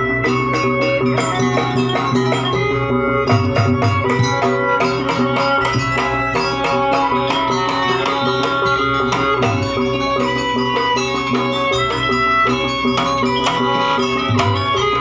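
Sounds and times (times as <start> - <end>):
sustained pitched instruments: 0.0 - 15.0
hand drumming: 3.3 - 15.0.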